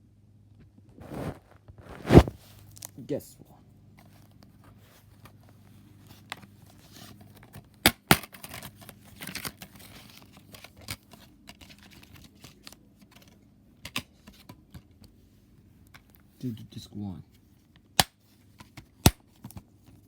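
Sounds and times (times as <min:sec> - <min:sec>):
brief rustle: 0:01.0 - 0:02.7.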